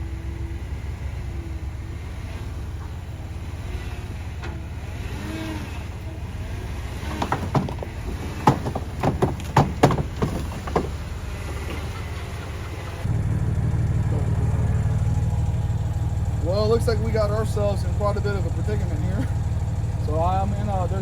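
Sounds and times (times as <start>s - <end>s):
engine running at low speed: 0.0s - 21.0s
sharp knocks and clunks: 6.8s - 11.9s.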